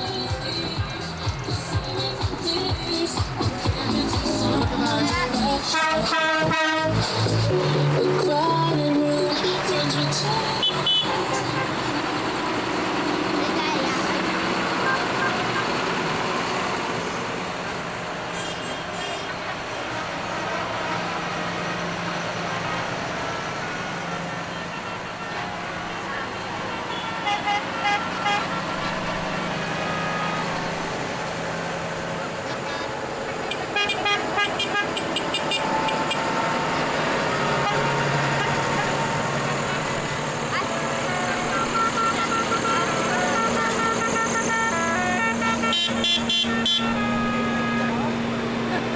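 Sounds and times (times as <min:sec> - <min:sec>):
tractor engines running: 0:00.0 - 0:48.9
horn short toots: 0:40.5 - 0:48.8.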